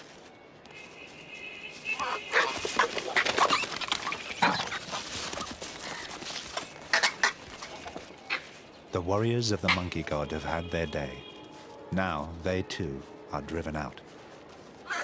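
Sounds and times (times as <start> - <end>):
monkeys screaming and shrieking: 2.0 - 8.6.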